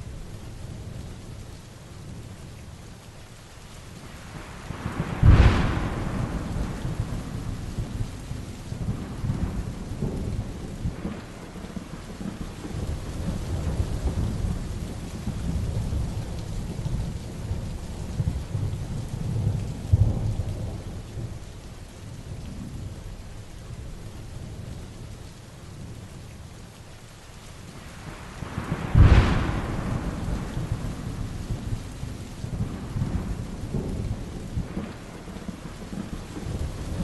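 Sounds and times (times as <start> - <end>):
heavy rain falling: 0.0 - 37.0
thunder cracks and rumbling: 4.7 - 21.4, 28.0 - 37.0.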